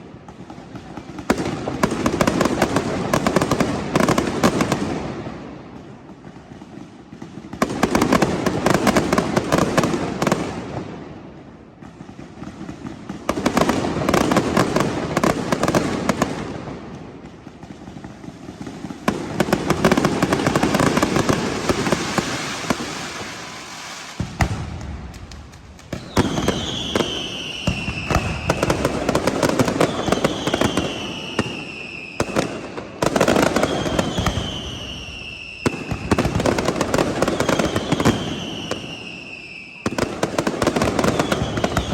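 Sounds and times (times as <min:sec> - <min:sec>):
fireworks crackling bangs: 0:00.0 - 0:41.9
fireworks whistling downward: 0:12.0 - 0:41.9.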